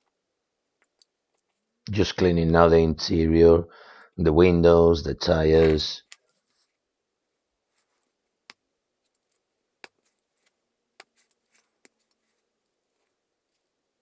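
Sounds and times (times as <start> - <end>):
faint sharp clicks and taps: 0.8 - 1.6, 7.8 - 12.4.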